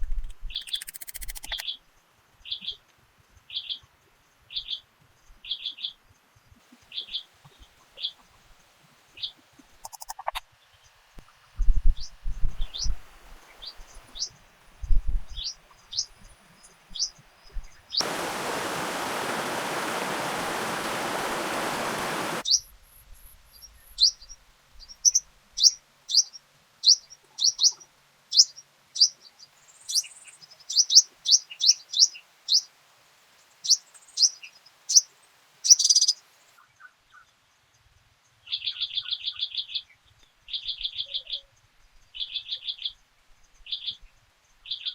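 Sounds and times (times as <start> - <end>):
small bird chirping: 0.4 - 1.8, 9.2 - 10.4, 23.6 - 32.7, 33.6 - 36.3
steady rushing hiss: 18.0 - 22.4.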